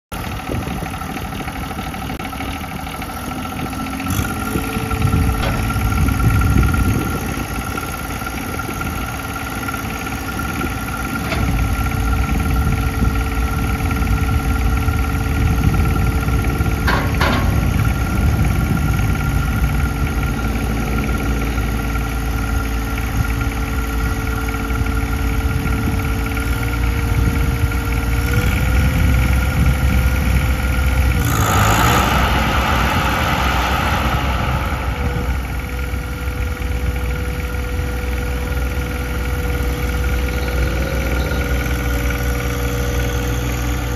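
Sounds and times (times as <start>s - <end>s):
tractor diesel engine running: 0.1s - 43.9s.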